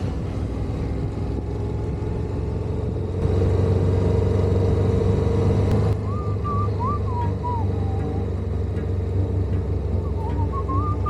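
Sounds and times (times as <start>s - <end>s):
wavering whistled call: 6.0s - 8.2s, 10.0s - 11.0s.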